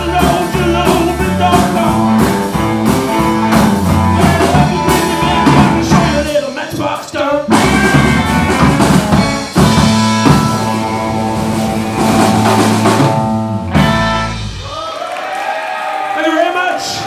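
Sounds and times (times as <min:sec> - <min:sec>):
person singing: 0:00.0 - 0:08.7
rock and roll band playing: 0:00.0 - 0:15.8.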